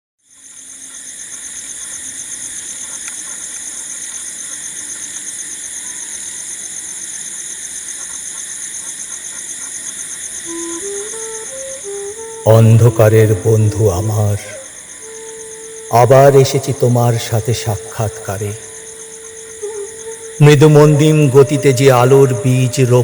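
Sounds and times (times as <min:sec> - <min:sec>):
insects chirping: 0:00.2 - 0:23.0.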